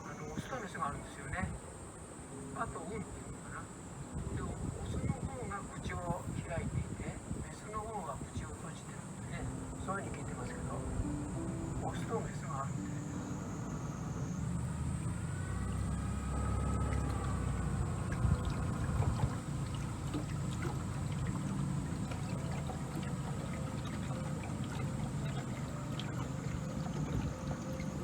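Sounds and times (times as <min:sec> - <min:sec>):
water moving along hull: 0:00.0 - 0:28.0
boat motor running: 0:09.1 - 0:28.0.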